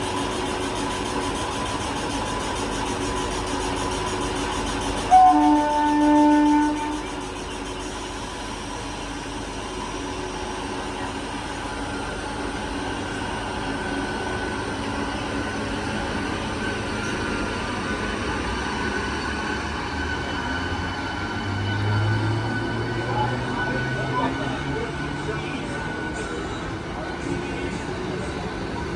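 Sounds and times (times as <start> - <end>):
train rumbling on rails: 0.0 - 28.9
train horn: 5.1 - 7.1.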